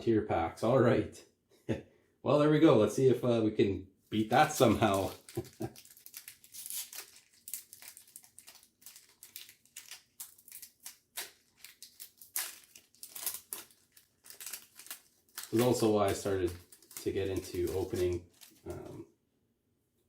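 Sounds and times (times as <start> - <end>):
foil wrapper crinkling and tearing: 4.2 - 19.0.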